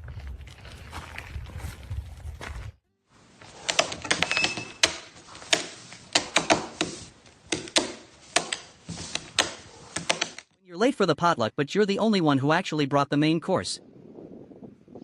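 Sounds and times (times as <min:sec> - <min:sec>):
sharp irregular clicks and knocks: 0:03.6 - 0:10.5.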